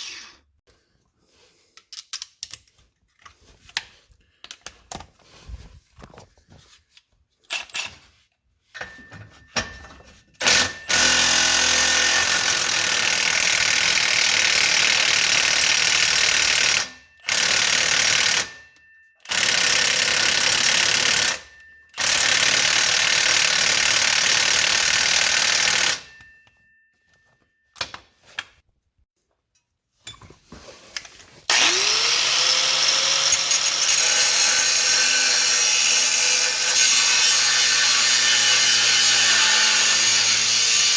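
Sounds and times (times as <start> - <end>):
power tool running: 10.4 - 18.5, 31.5 - 40.9.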